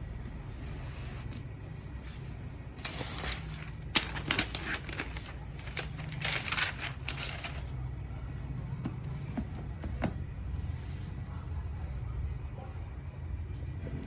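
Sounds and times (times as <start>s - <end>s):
steady low hum: 0.0s - 14.0s
packaging crinkling: 2.8s - 7.8s.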